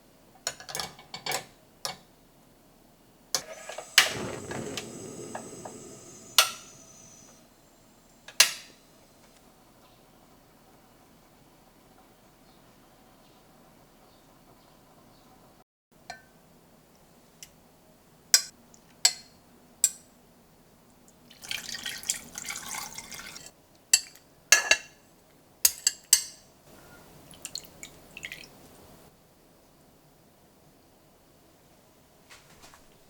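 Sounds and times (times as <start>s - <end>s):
liquid pouring: 3.4s - 7.4s, 21.3s - 23.5s, 27.3s - 28.7s.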